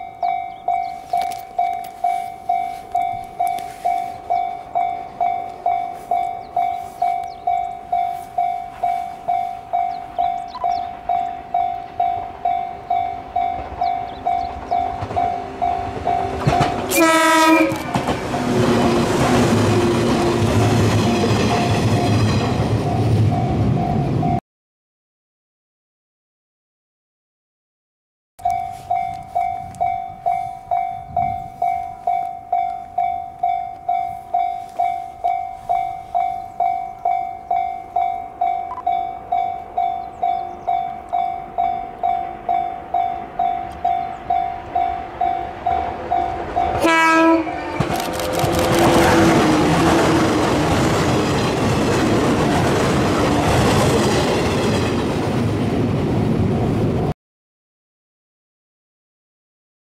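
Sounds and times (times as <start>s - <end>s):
level-crossing alarm dinging: 0.0s - 24.4s, 28.4s - 54.0s
train wheels rumbling and clattering: 0.2s - 24.0s, 39.2s - 57.1s
train horn tones: 13.6s - 20.6s, 45.5s - 50.8s.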